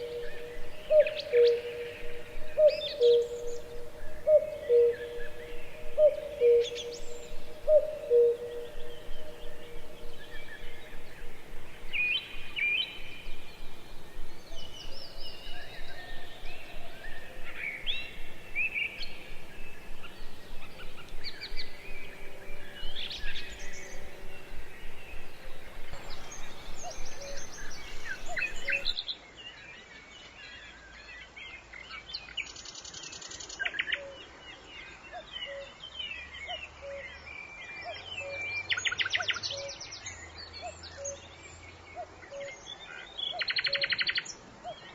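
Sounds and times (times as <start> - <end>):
bird trills: 0.0 - 29.0
wild birds chirping and singing: 0.0 - 44.9.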